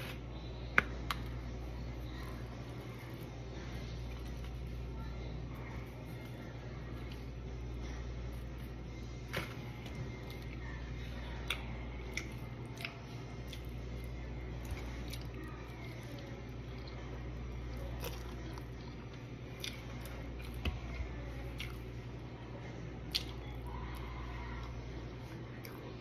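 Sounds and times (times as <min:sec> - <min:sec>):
steady low hum: 0:00.0 - 0:26.0
chewing with wet mouth clicks: 0:11.4 - 0:14.0, 0:17.9 - 0:20.7, 0:21.4 - 0:21.9, 0:23.0 - 0:24.0.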